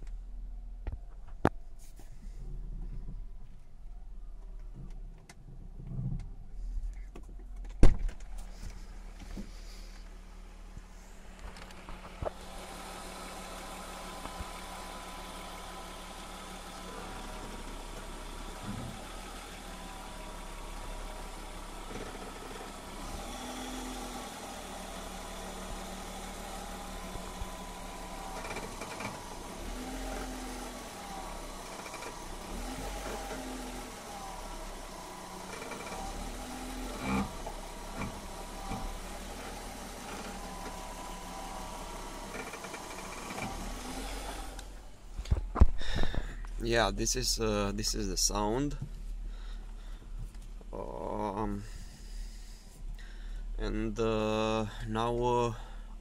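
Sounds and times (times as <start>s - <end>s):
car engine idling: 0.0s - 56.0s
wheel groaning: 24.8s - 45.3s.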